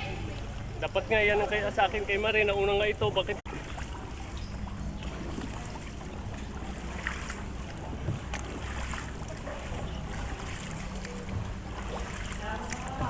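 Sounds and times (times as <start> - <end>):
low hum: 0.0 - 13.0
water noise around boat: 0.0 - 13.0
faint knocks: 7.9 - 8.6.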